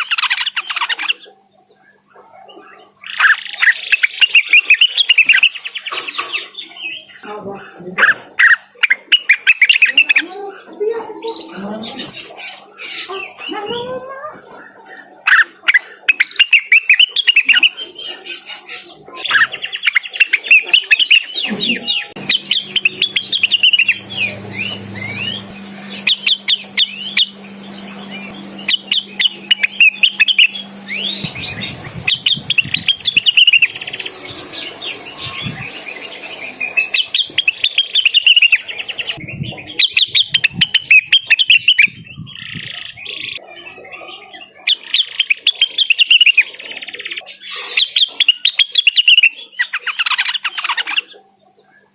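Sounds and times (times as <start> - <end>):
bird singing high chirps and trills: 0.0 - 7.4, 8.4 - 51.9.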